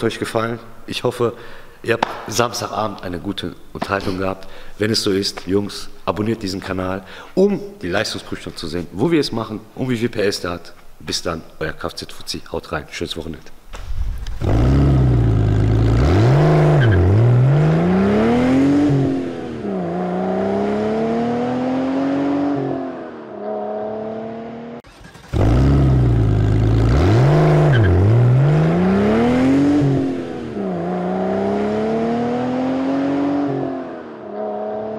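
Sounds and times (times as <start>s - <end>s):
car engine revving: 14.1s - 34.9s.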